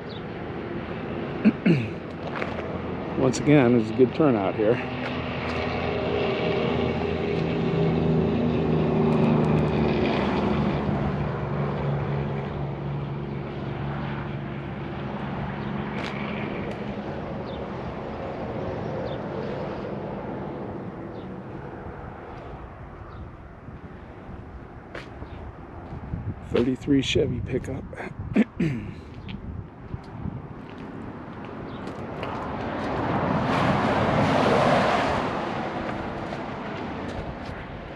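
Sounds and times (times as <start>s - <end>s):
passing engine drone: 2.7s - 25.4s, 30.4s - 37.9s.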